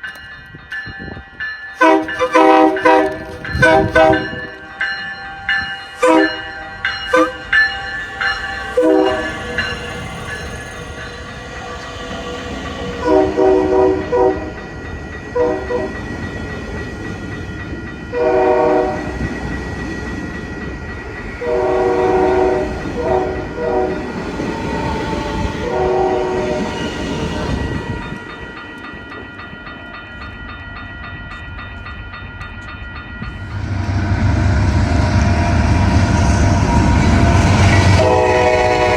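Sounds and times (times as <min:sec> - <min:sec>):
approaching train rumble: 0:00.0 - 0:38.9
train horn blasts: 0:01.8 - 0:04.6, 0:06.0 - 0:07.7, 0:08.8 - 0:09.4, 0:13.0 - 0:14.6, 0:15.4 - 0:16.0, 0:18.1 - 0:19.2, 0:21.4 - 0:24.2, 0:24.8 - 0:28.2, 0:35.8 - 0:38.9.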